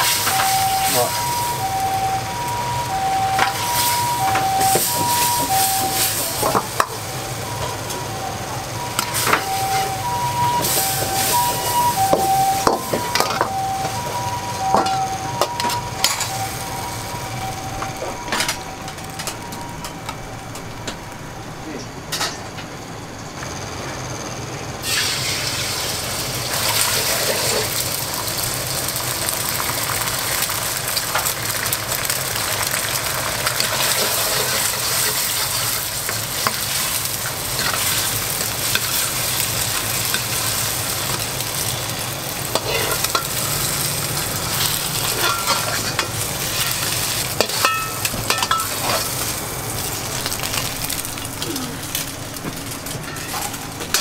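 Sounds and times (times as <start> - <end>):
food sizzling in oil: 0.0 - 21.4, 24.8 - 54.0
metal utensil scraping pan: 42.6 - 43.4, 44.6 - 46.8.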